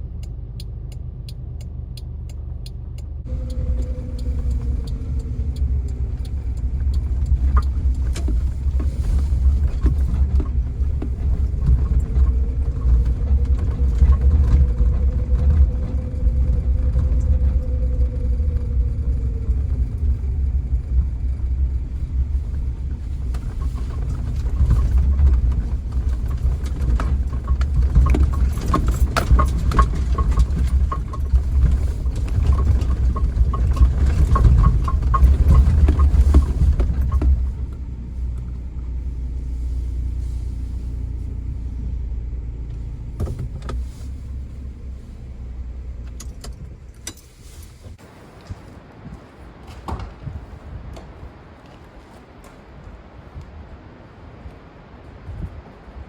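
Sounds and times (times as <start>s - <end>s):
car rumble while driving: 0.0s - 51.5s
rapid clicking and rattling: 3.2s - 38.5s.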